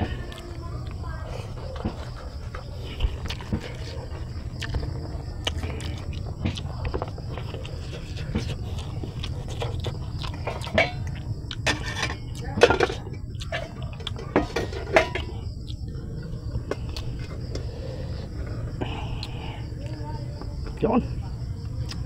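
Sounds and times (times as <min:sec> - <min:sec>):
steady low hum: 0:00.0 - 0:22.0
chewing and wet mouth smacks: 0:04.5 - 0:07.8, 0:08.5 - 0:11.6.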